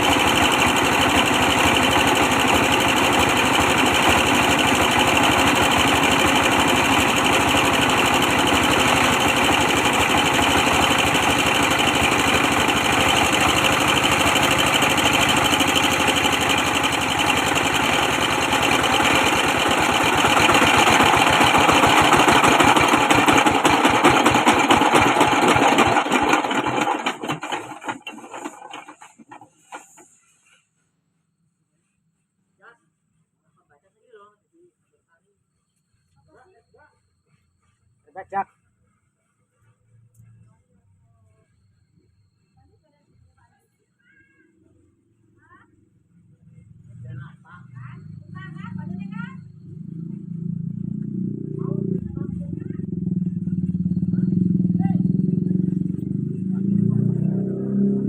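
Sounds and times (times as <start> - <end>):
diesel engine running: 0.0 - 29.3, 46.8 - 58.0.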